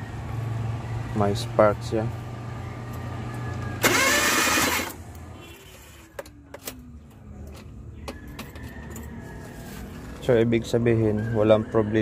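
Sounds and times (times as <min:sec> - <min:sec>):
starter motor cranking: 0:03.8 - 0:05.0.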